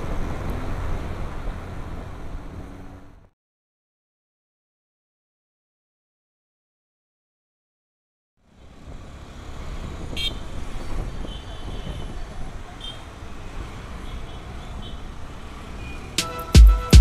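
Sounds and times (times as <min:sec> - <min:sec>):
road traffic rumble: 0:00.0 - 0:03.4, 0:08.4 - 0:17.0
vehicle horn toots: 0:10.1 - 0:10.4.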